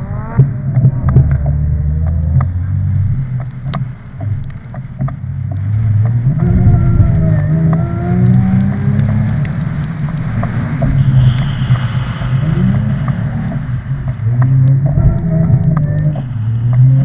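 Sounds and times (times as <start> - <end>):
car engine revving: 0.0 - 17.0
brief hiss: 11.0 - 13.2.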